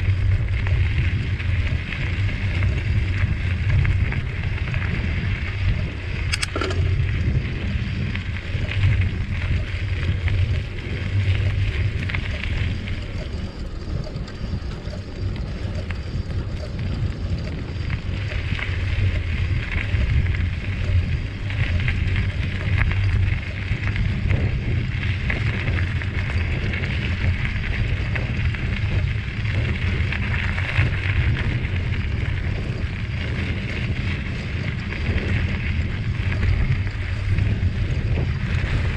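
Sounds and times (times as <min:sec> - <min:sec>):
wind buffeting microphone: 0:00.0 - 0:38.9
sharp click: 0:06.3 - 0:07.0.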